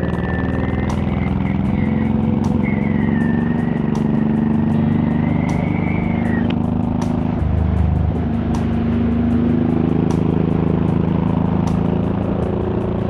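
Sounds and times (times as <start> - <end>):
thin wavering whistle: 0.0 - 6.6
motorcycle engine running: 0.0 - 13.0.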